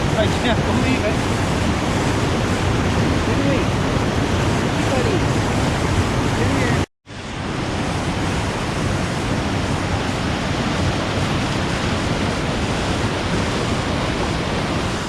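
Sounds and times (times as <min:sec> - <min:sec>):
waterfall crashing: 0:00.0 - 0:15.0.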